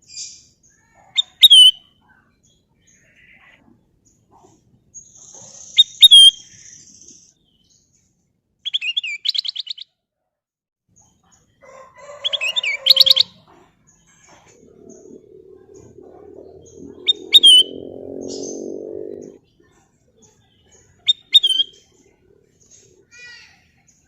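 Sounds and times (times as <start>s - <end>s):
bulbul singing whistled notes: 14.6s - 19.4s.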